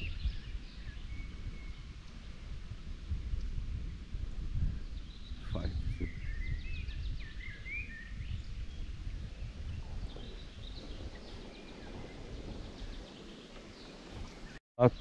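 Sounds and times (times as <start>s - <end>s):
small birds warbling: 4.9s - 15.0s
steady low rumble: 8.3s - 14.6s.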